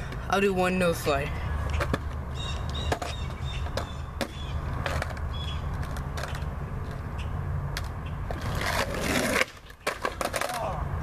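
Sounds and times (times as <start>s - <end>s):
skateboard wheels rumbling: 0.1s - 11.0s
skateboard clacks: 2.9s - 7.0s, 7.7s - 10.8s
skateboard scraping: 8.2s - 10.8s.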